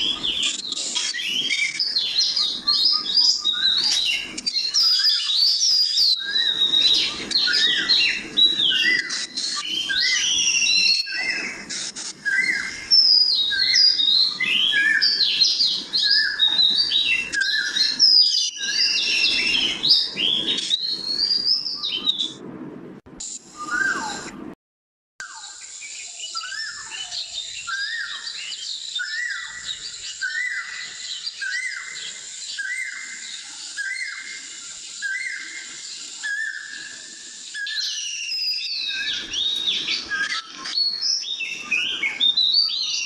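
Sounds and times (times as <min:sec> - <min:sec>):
songbirds chirping and twittering: 0:00.0 - 0:22.6, 0:25.2 - 0:43.0.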